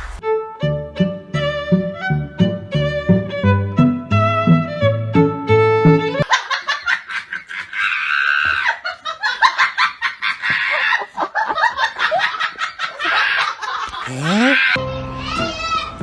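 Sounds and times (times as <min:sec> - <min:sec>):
high-pitched laughter: 0:12.1 - 0:14.8.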